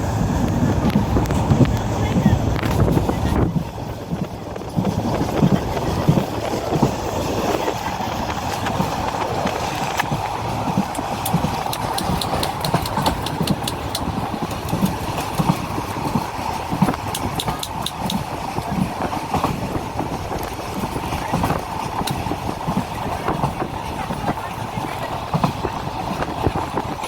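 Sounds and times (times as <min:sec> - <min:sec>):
train wheels rumbling: 0:00.0 - 0:27.0
rapid sharp clicking: 0:08.3 - 0:19.6.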